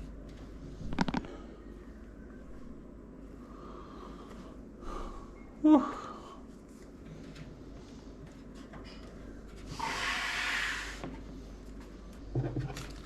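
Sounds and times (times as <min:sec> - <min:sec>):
scraping hiss of pc parts: 0:09.7 - 0:11.1.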